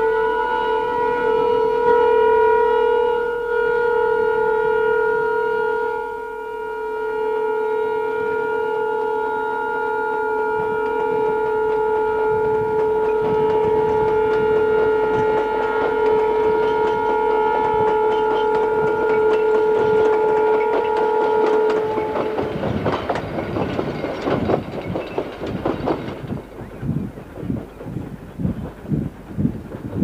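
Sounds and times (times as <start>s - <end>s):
locomotive horn blast: 0.0s - 24.4s
wheels clattering over rail joints: 11.4s - 30.0s.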